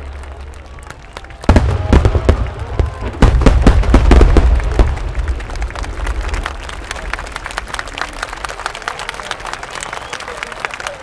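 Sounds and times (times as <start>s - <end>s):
fireworks bangs and crackles: 0.0s - 8.6s.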